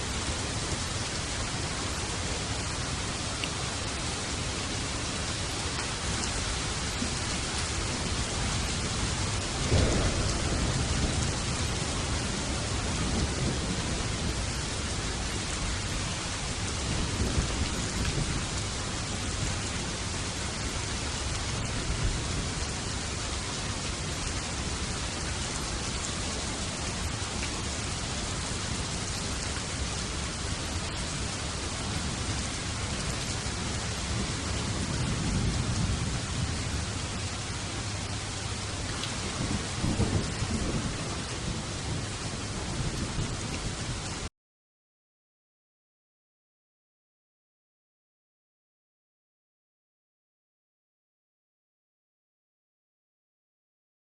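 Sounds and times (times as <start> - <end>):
heavy rain: 0.0 - 44.3
thunder rumbling: 6.8 - 44.2.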